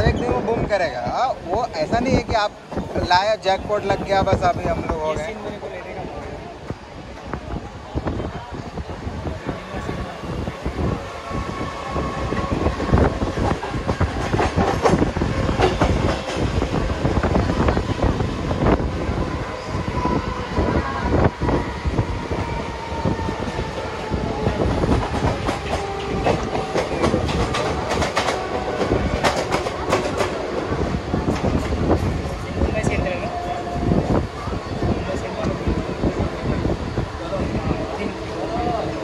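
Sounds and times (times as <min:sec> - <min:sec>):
steady train whine: 0:00.0 - 0:39.0
train wheels clattering over rail joints: 0:13.4 - 0:16.6, 0:24.8 - 0:32.1.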